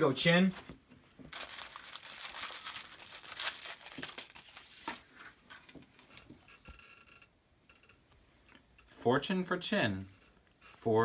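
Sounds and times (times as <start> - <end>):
plastic wrapper crinkling and tearing: 1.3 - 5.2
high ringing tone: 6.4 - 9.0.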